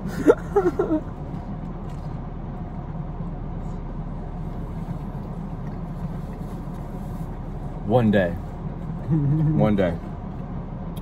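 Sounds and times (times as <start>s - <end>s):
car engine idling: 0.0s - 11.0s
person laughing: 0.1s - 1.1s, 9.1s - 9.7s.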